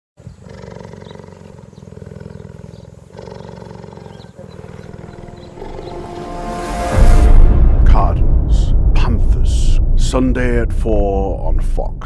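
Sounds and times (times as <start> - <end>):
big cat roaring: 0.3 - 6.1.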